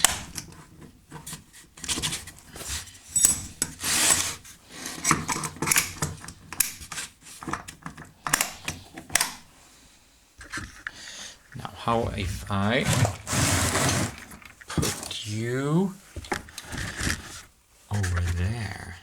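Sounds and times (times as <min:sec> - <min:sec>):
hand file rasping: 0:03.8 - 0:05.0.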